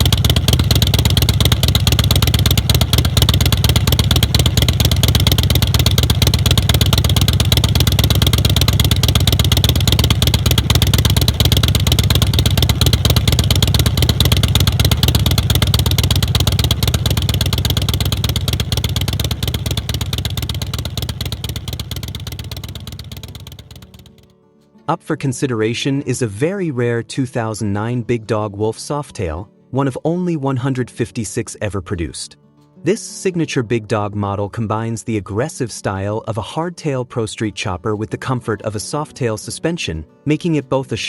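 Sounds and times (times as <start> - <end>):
motorcycle engine running: 0.0 - 24.3.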